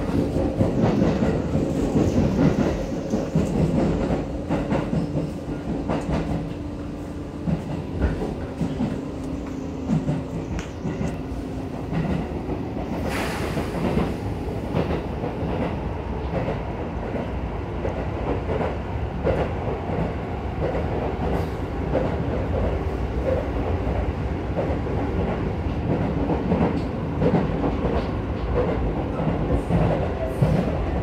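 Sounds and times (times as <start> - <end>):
wheels rumbling on rail: 0.0 - 31.0.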